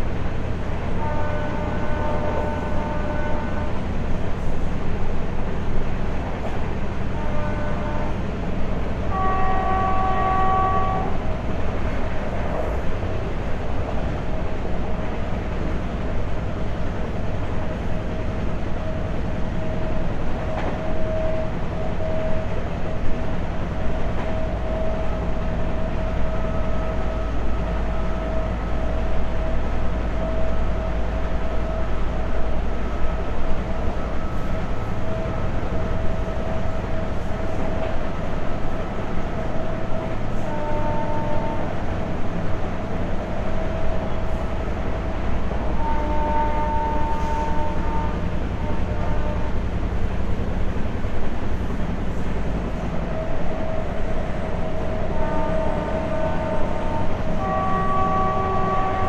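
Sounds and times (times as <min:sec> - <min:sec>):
train wheels rumbling on track: 0:00.0 - 0:59.0
train horn: 0:00.9 - 0:03.9, 0:07.0 - 0:08.3, 0:09.0 - 0:11.4, 0:24.2 - 0:29.6, 0:30.2 - 0:32.1, 0:39.3 - 0:42.0, 0:43.4 - 0:49.7, 0:52.8 - 0:59.0.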